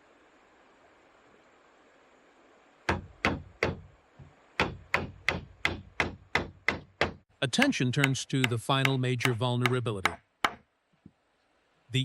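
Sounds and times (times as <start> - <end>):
hammering on wood: 2.9 - 10.7.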